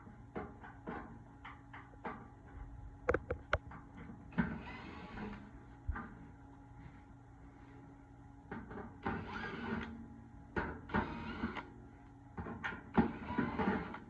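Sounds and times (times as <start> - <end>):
cordless drill whirring: 4.5 - 5.4, 9.0 - 10.0, 10.9 - 11.7, 13.0 - 14.0.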